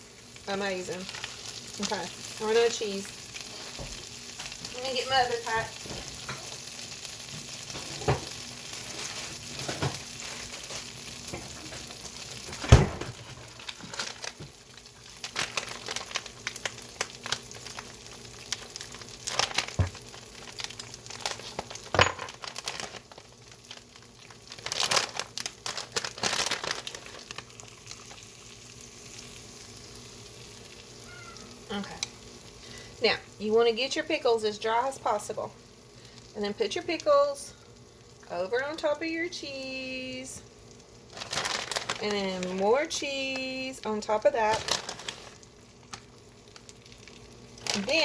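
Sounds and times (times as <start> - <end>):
faint sizzling hiss: 0.0 - 48.0.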